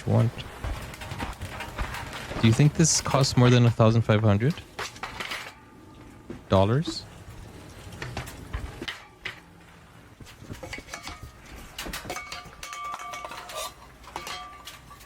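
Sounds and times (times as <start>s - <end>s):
dishes and utensils clinking: 0.0s - 5.7s, 10.4s - 15.0s.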